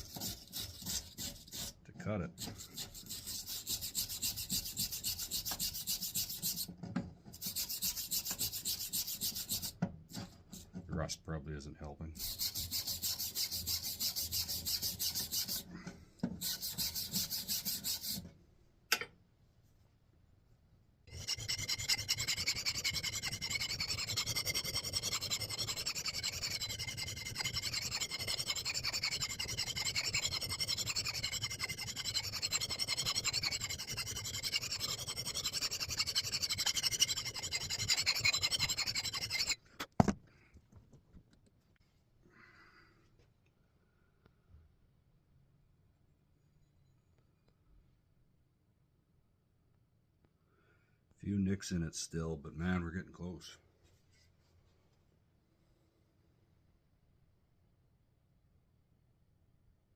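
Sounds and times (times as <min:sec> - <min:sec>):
hand file rasping on steel: 0:00.0 - 0:10.7, 0:12.2 - 0:15.7, 0:16.4 - 0:18.2, 0:21.1 - 0:39.6.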